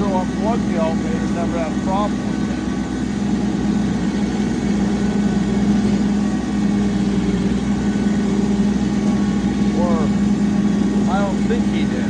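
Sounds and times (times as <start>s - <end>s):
tractor engine drone: 0.0s - 12.0s.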